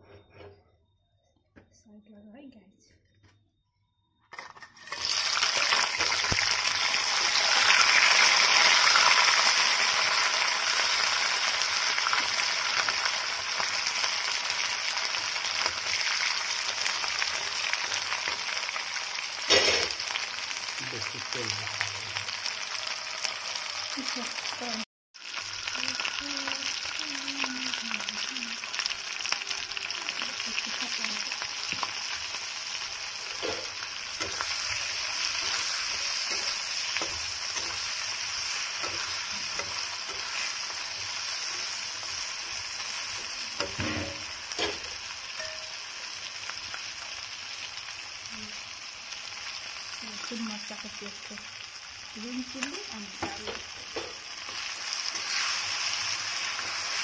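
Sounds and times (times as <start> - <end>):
crabs sizzling in hot oil: 4.4 - 57.0
spatula scraping and knocking pan: 33.3 - 41.1.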